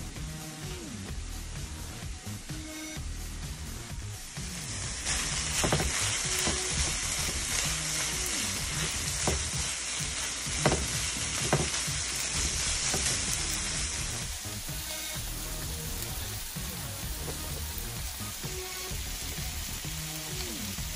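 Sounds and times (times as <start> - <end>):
meat sizzling in a frying pan: 4.0 - 20.9.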